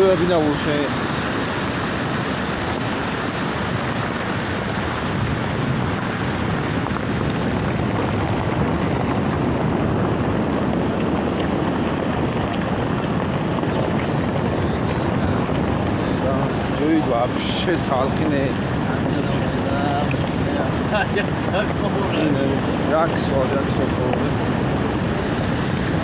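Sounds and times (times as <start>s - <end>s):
river water rushing: 0.0s - 7.7s, 24.3s - 26.0s.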